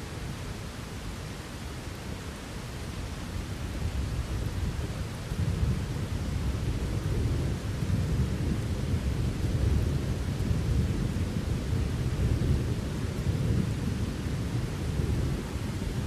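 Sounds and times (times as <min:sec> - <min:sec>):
steady rain: 0:00.0 - 0:16.0
thunder rumbling: 0:04.6 - 0:16.0.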